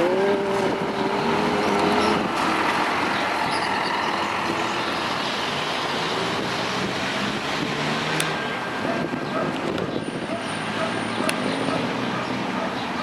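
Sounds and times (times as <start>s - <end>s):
bus diesel engine running: 0.0s - 8.0s
road and air noise: 0.0s - 13.0s.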